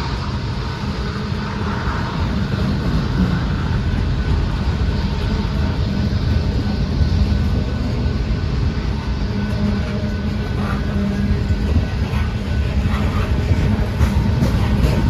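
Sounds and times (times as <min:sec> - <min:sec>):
freight train rumbling past: 0:00.0 - 0:15.0.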